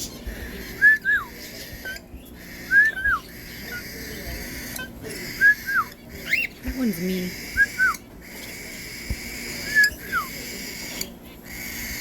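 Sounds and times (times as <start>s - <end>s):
bird whistling call: 0.7s - 2.0s, 2.6s - 4.1s, 4.7s - 6.6s, 7.3s - 8.0s, 9.4s - 10.6s.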